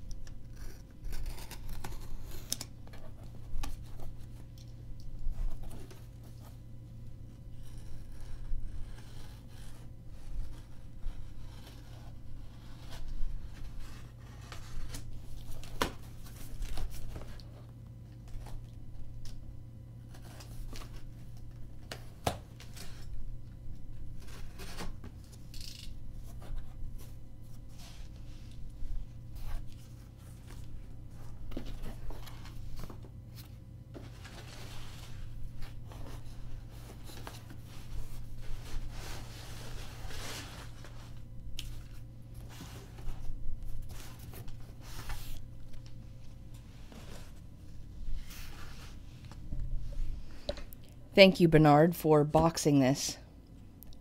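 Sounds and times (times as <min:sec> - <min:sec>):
packing tape tearing: 0:00.3 - 0:02.8, 0:24.3 - 0:26.0
cardboard scraping: 0:29.3 - 0:45.4.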